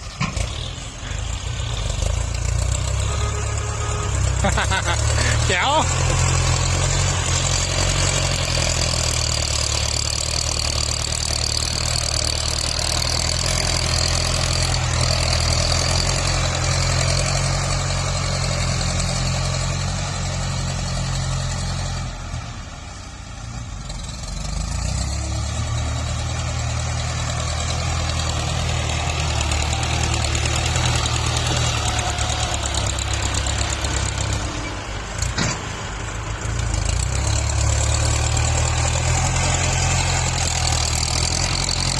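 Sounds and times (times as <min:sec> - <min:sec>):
diesel tractor engine running: 0:00.0 - 0:41.9.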